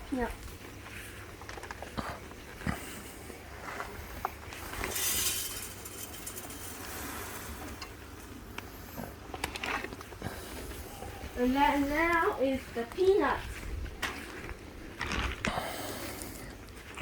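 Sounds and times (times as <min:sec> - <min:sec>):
seed pouring rattle: 0:04.6 - 0:07.8.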